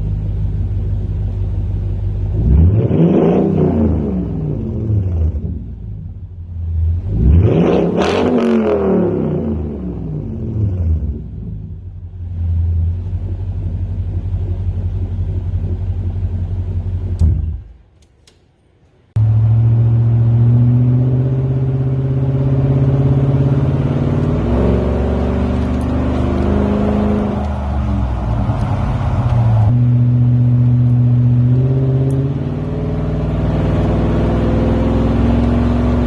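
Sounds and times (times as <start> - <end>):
deep exhaust drone: 0.0 - 17.9, 19.1 - 36.0.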